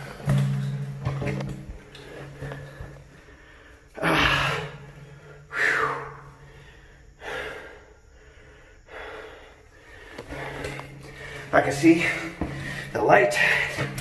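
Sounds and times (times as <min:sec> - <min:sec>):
man exhaling heavily: 0:03.3 - 0:11.5.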